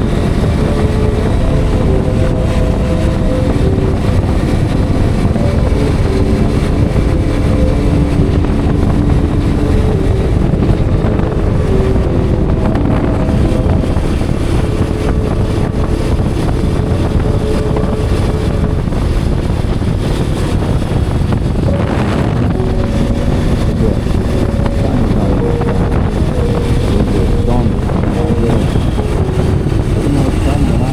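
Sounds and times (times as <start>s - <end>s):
wind rumble on microphone: 0.0s - 30.9s.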